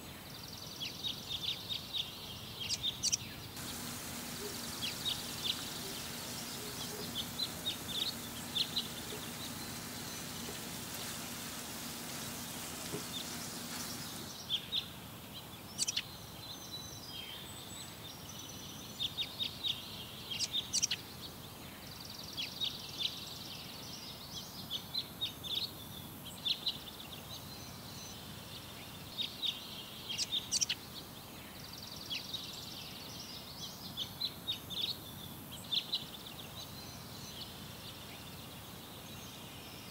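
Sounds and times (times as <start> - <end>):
small birds chirping: 0.0 - 14.9
steady low hum: 3.6 - 14.4.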